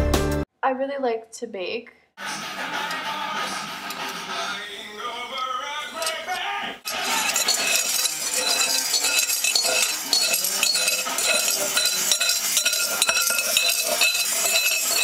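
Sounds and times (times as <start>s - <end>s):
metal utensil clinking in bowl: 6.9s - 15.0s.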